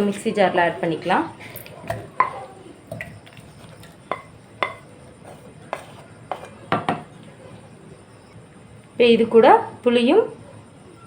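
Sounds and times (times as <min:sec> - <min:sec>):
metal spoon clinking on cookware: 0:01.5 - 0:04.9.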